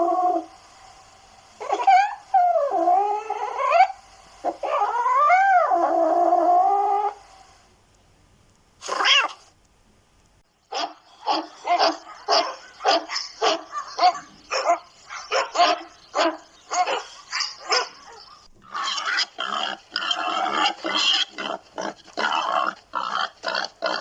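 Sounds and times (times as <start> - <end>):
cat meowing: 8.8 - 9.5
dog barking rapidly: 10.7 - 21.4.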